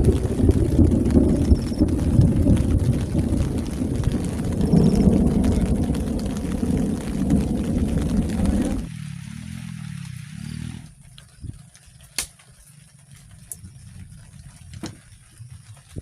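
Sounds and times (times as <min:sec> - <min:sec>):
thunder rumble: 0:00.0 - 0:11.7.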